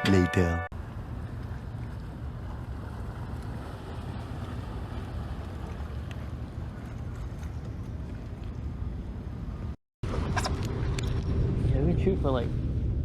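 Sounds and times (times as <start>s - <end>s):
boat motor humming: 0.0s - 11.5s.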